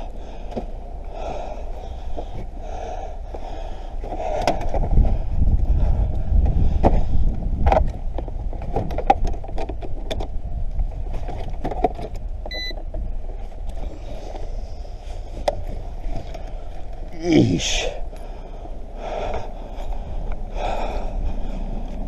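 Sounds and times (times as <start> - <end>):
wind rumble on microphone: 0.0 - 17.2, 18.0 - 22.0
handling clicks and knocks: 7.6 - 10.4.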